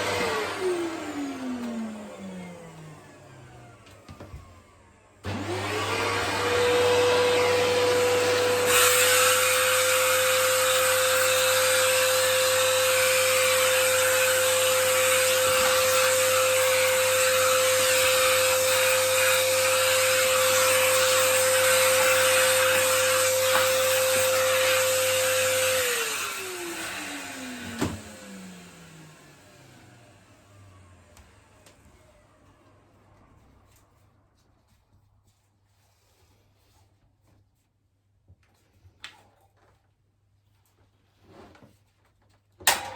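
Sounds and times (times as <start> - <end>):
vacuum cleaner motor whine: 0.0 - 34.1.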